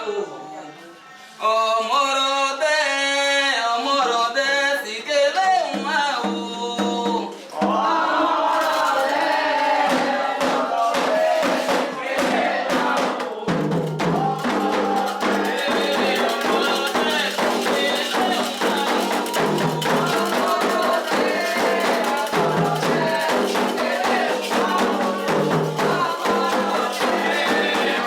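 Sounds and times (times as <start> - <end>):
group of voices singing in chorus: 0.0 - 28.0
drums and percussion: 5.3 - 28.0.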